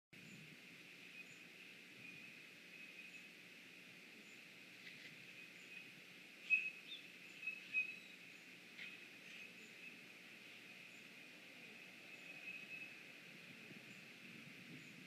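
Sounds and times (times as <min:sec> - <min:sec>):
bird chirps: 0:01.1 - 0:03.4, 0:05.2 - 0:13.1.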